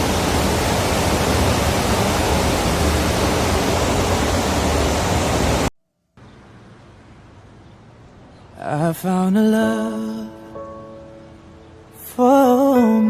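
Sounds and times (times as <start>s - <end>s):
ship machinery roar: 0.0s - 5.7s.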